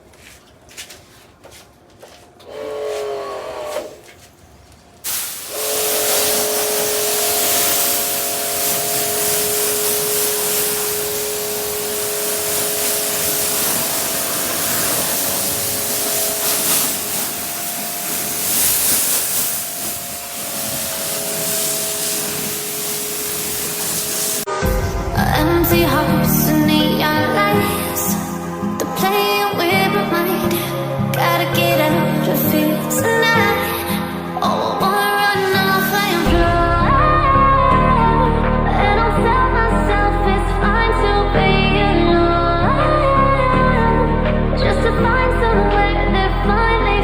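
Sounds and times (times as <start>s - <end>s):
pump motor hum: 2.4s - 4.1s, 5.0s - 24.5s
pressure washer spray hiss: 5.0s - 24.6s.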